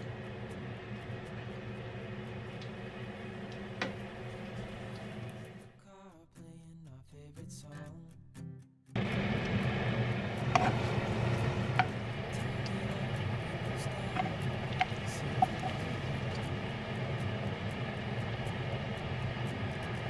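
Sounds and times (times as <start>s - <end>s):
food sizzling in oil: 9.0s - 20.0s
oil popping: 9.0s - 20.0s.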